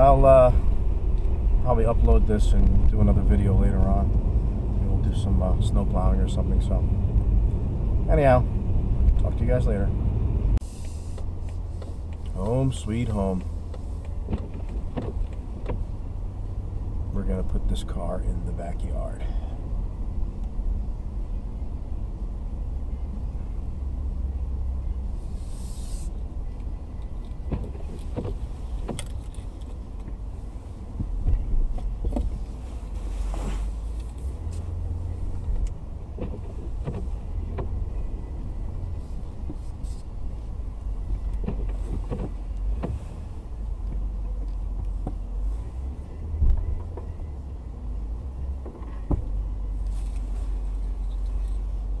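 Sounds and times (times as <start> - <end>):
car engine and tyre rumble: 0.0 - 52.0
knocks and creaks: 13.4 - 15.9, 27.0 - 30.2, 35.4 - 37.8, 41.2 - 43.1.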